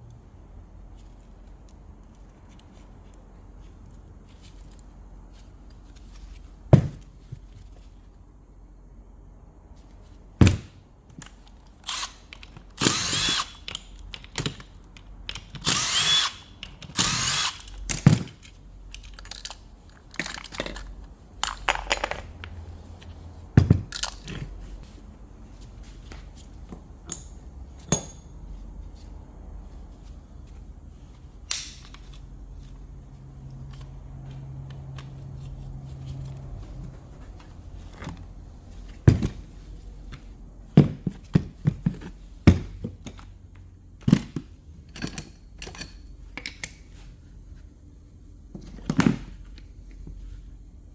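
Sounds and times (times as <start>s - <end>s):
power tool bursts: 12.8s - 13.6s, 15.7s - 16.4s, 17.0s - 17.7s.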